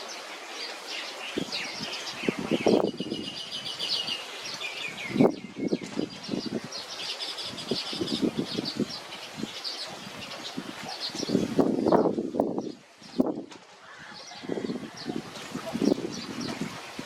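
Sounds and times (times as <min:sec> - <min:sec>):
small songbird chirping: 0:00.0 - 0:13.4.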